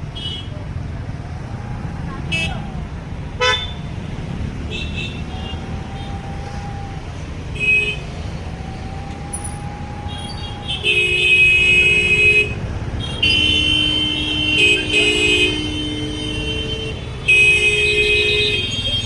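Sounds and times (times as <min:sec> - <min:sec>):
road traffic rumbling: 0:00.0 - 0:19.0
vehicle horns honking: 0:03.4 - 0:05.8, 0:07.5 - 0:08.2, 0:10.1 - 0:19.0.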